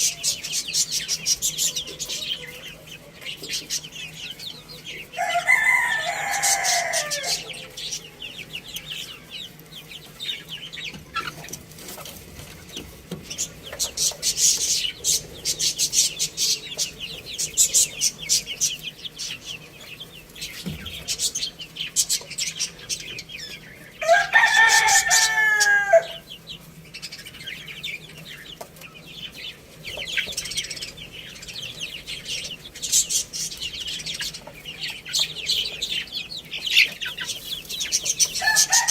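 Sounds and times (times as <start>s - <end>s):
small birds chirping: 0.0s - 38.9s
rooster crowing: 5.1s - 8.5s, 24.0s - 26.3s, 38.4s - 38.9s.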